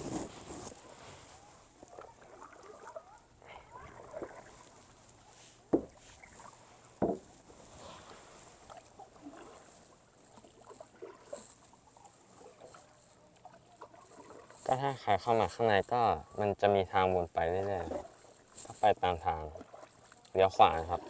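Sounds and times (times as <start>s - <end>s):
paddle splashes and drips: 0.6s - 15.5s, 17.3s - 21.0s
sharp knocks on kayak: 5.7s - 6.0s, 7.0s - 7.3s.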